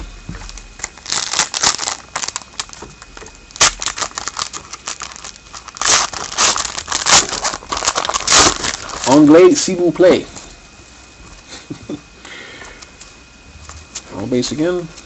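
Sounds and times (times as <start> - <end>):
card wrappers crinkling and tearing: 0.4 - 9.6.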